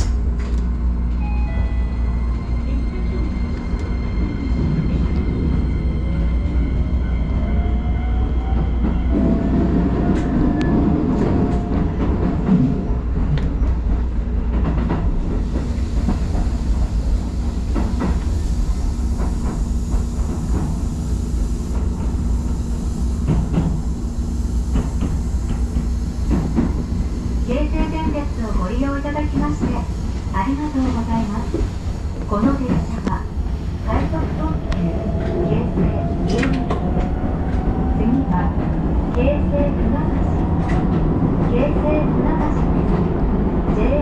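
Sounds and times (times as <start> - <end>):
rail-joint clicks: 0.0 - 1.3, 27.6 - 44.0
train rushing noise: 0.0 - 44.0.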